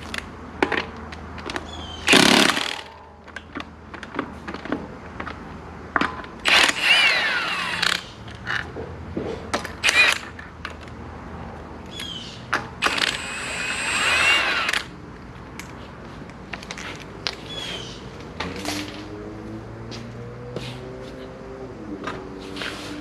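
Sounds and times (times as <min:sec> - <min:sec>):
impact wrench whining: 0:02.0 - 0:03.0, 0:06.4 - 0:08.6, 0:09.7 - 0:10.4, 0:12.8 - 0:15.0.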